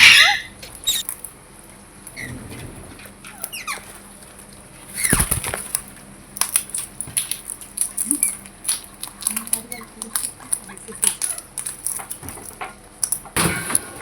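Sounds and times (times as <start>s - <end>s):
parrot calls falling in pitch: 0.0s - 1.0s.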